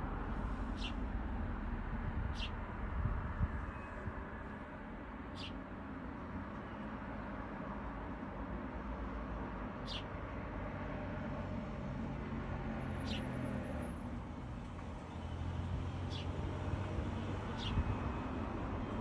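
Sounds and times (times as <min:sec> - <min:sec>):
road traffic rumble: 0:00.0 - 0:19.0
high-pitched bird calls: 0:00.8 - 0:01.0, 0:02.3 - 0:02.6, 0:05.3 - 0:05.6, 0:09.8 - 0:10.1.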